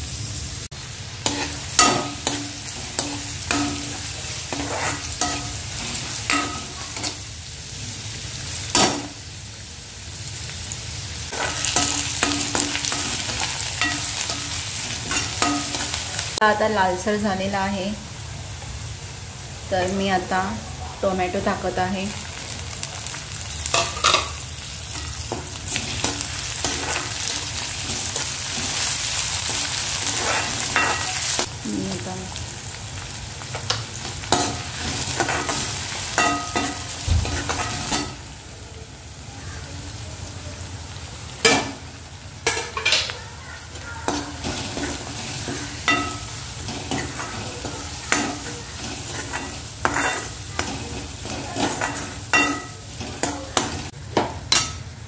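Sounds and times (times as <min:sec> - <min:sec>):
onions sizzling in oil: 0:00.0 - 0:55.0
ladle scraping pan: 0:01.3 - 0:07.2, 0:25.3 - 0:31.5.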